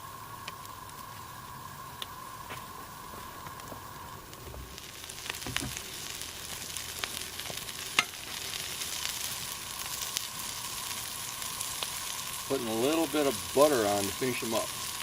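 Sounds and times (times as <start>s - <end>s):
meat sizzling on a grill: 0.0s - 15.0s
pops and crackles: 2.0s - 13.3s.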